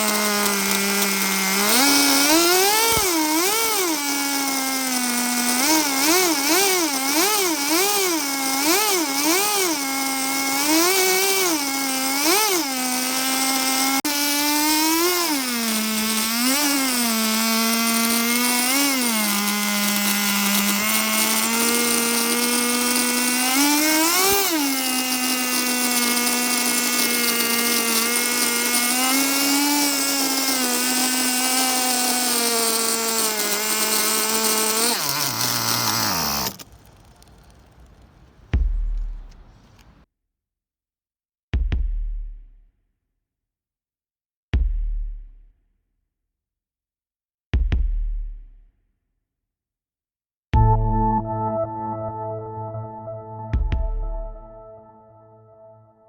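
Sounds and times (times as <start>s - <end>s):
small two-stroke engine revving: 0.0s - 40.0s.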